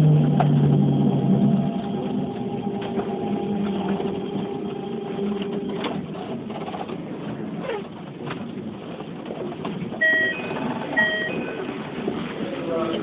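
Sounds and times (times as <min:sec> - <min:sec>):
falling motor whine: 0:00.0 - 0:06.0
train running rumble: 0:00.0 - 0:13.0.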